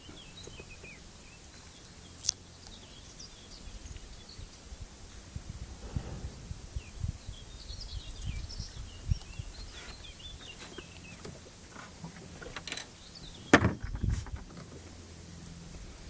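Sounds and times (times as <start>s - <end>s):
songbird chirping and warbling: 0.0s - 4.8s, 5.9s - 11.4s, 12.2s - 14.4s
low rumble: 5.1s - 8.1s.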